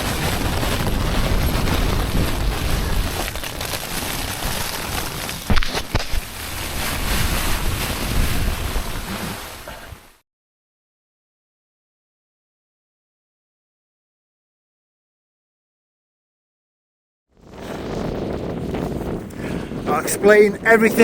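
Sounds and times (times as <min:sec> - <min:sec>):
gusting wind buffeting microphone: 0:00.0 - 0:10.2, 0:17.4 - 0:21.0.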